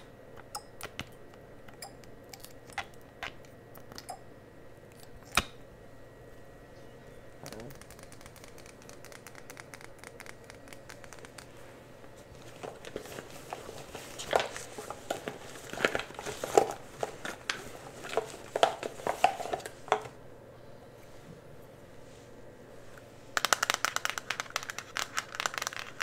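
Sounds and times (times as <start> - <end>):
crinkling of handled material: 10.1 - 20.2.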